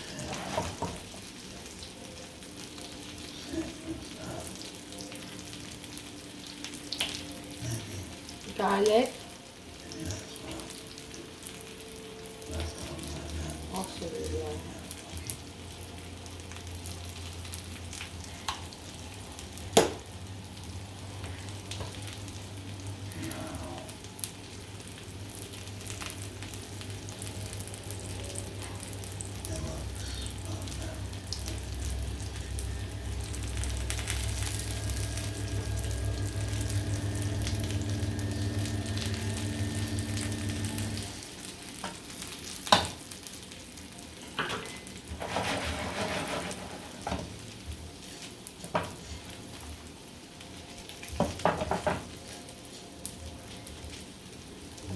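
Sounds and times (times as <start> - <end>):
onion sizzling in hot oil: 0.0 - 54.9
steady low hum: 25.2 - 41.3
stirring in frying pan: 44.6 - 47.4.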